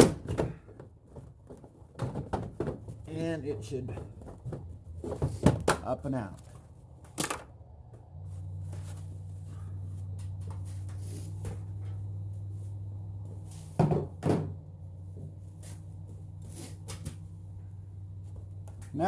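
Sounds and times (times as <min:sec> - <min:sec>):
steady low hum: 0:06.4 - 0:19.0.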